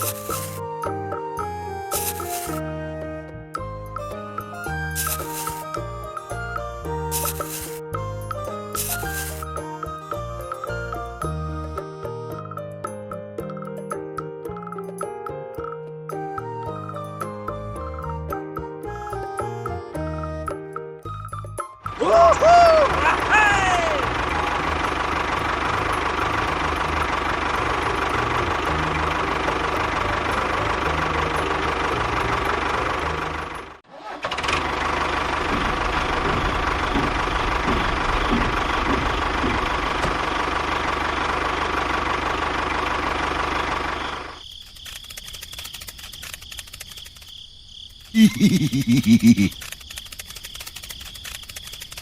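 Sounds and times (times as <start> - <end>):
small engine running: 0.0 - 0.6, 1.5 - 2.6, 4.8 - 7.8, 8.4 - 12.0, 22.6 - 47.3, 48.2 - 52.0
rapid ticking: 34.9 - 42.0, 44.2 - 52.0.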